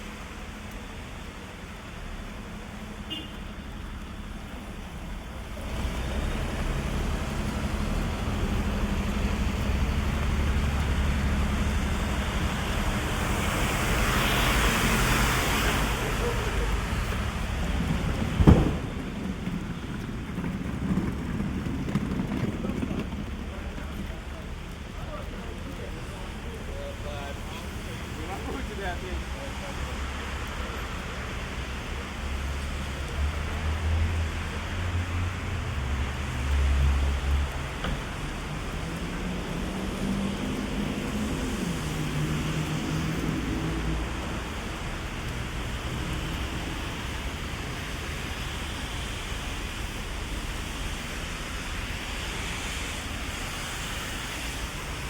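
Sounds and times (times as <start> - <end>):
heavy rain hiss: 0.0 - 55.0
traffic rumble on wet road: 0.0 - 55.0
low rumble: 15.8 - 24.8.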